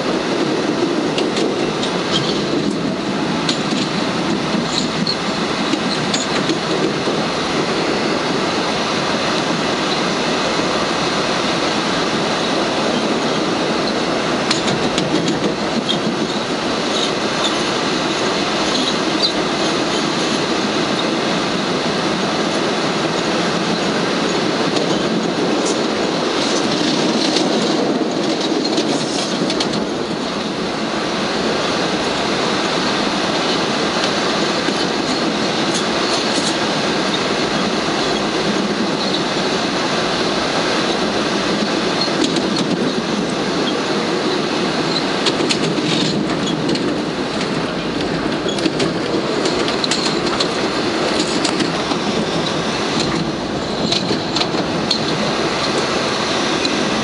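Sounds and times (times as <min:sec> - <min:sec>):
steel wheels rumbling on rail: 0:00.0 - 0:57.0
wheels clicking over rail joints: 0:00.0 - 0:57.0
high wheel squeals: 0:15.8 - 0:21.2, 0:37.1 - 0:39.8.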